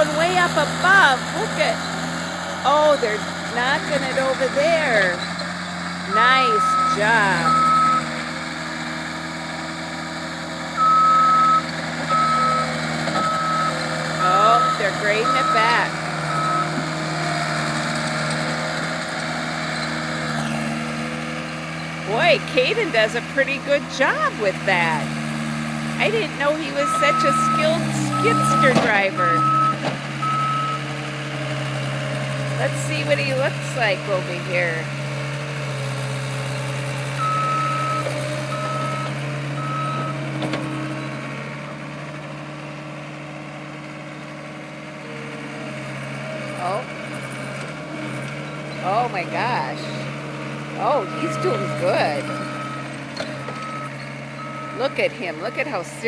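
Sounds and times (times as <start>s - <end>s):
loader engine running: 0.0s - 56.0s
reversing beep: 6.1s - 8.1s, 10.8s - 16.8s, 26.1s - 30.9s, 37.2s - 40.2s, 50.8s - 55.8s.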